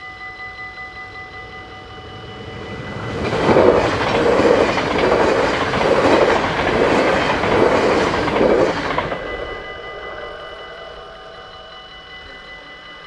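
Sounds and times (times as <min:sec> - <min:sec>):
train wheels clattering over rail joints: 0:02.6 - 0:09.6.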